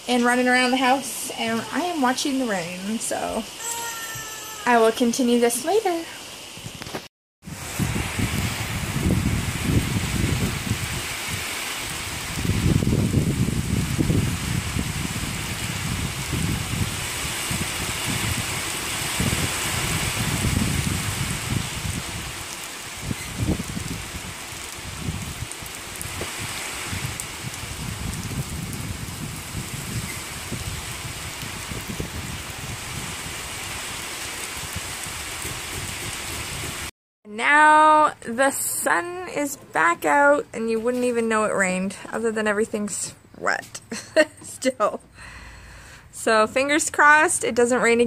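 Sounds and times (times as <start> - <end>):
rain on a wooden deck: 0.0 - 36.9.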